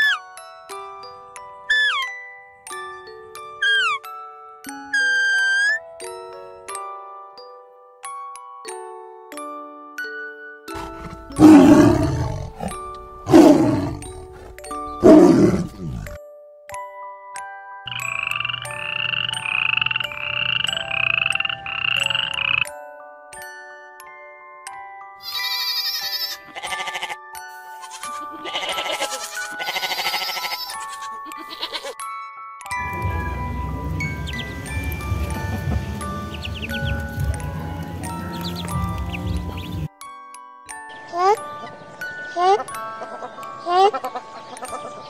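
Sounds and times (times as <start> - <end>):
soft chiming music: 5.8 - 18.8, 22.7 - 45.0
tiger roaring: 10.8 - 16.2
young goat bleating: 25.2 - 27.2, 27.8 - 32.0.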